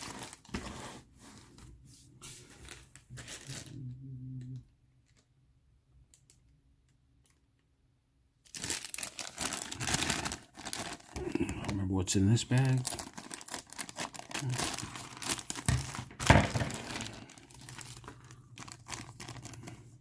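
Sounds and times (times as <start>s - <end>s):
plastic bags crinkling: 0.0s - 1.1s, 2.6s - 3.8s, 8.4s - 20.0s.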